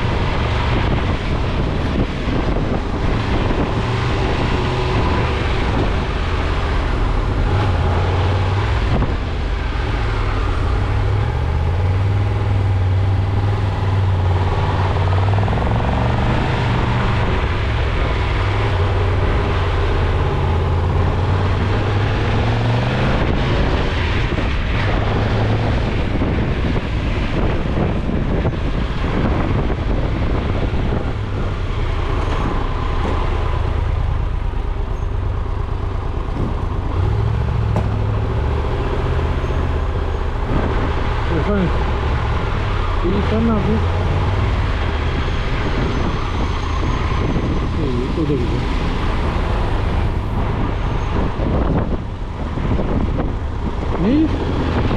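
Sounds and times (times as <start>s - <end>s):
car engine while driving: 0.0s - 54.9s
road noise: 0.0s - 54.9s.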